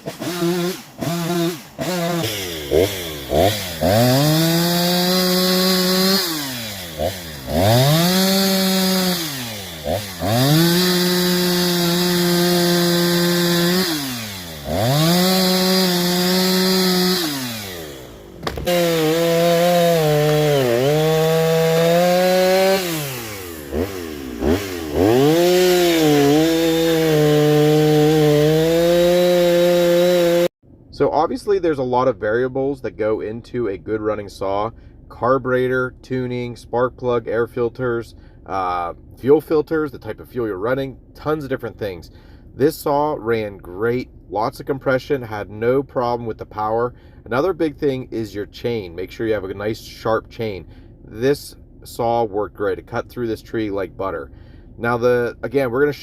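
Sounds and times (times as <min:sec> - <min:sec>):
chainsaw cutting wood: 0:00.0 - 0:30.5.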